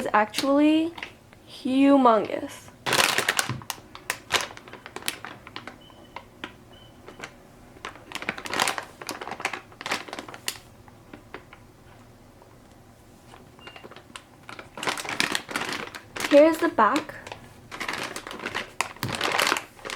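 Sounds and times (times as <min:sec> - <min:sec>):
plastic packaging crinkling: 0:02.8 - 0:11.9, 0:13.3 - 0:19.9.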